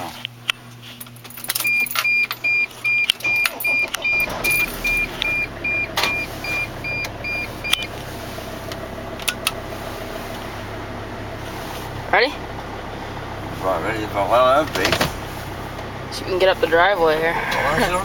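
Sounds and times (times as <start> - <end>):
diesel engine starting and idling: 1.3 - 18.0
dashboard warning chime beeping: 1.6 - 8.0.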